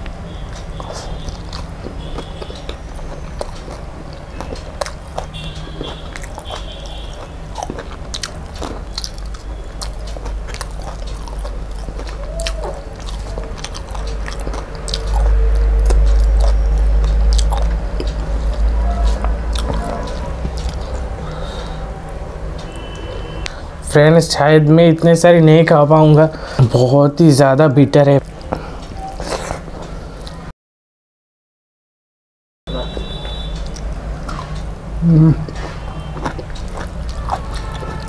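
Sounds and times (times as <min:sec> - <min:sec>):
person chewing food: 0:00.0 - 0:23.6, 0:28.2 - 0:30.4, 0:32.9 - 0:38.0
deep low rumble: 0:07.5 - 0:23.5.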